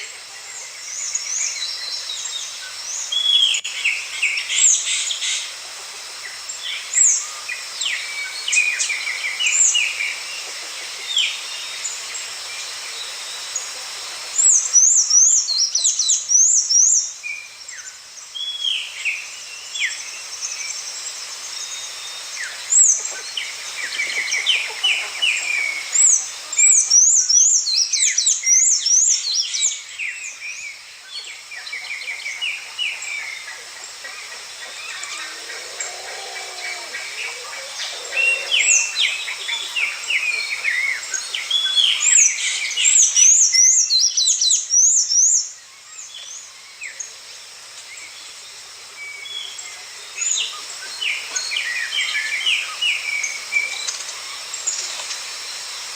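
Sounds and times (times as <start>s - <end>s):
background hiss: 0.0s - 55.9s
rapid high-pitched bird phrases: 32.0s - 45.3s
birds chirping and whistling: 34.7s - 45.4s.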